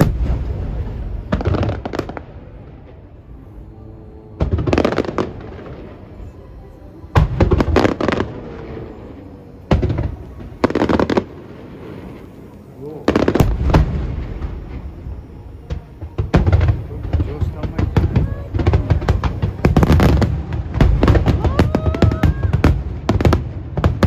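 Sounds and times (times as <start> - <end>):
firework shells bursting: 7.1 - 24.0.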